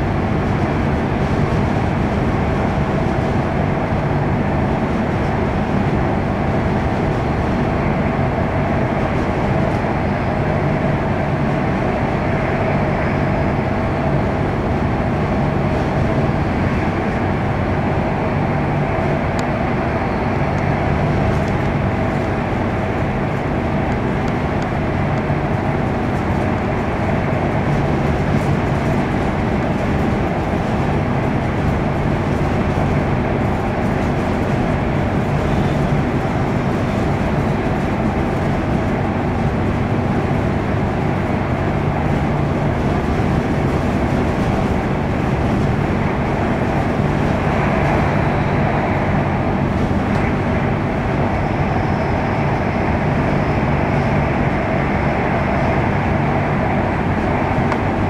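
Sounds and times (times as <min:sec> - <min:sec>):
constant low hum: 0:00.0 - 0:58.0
wheels rumbling on rail: 0:00.0 - 0:58.0.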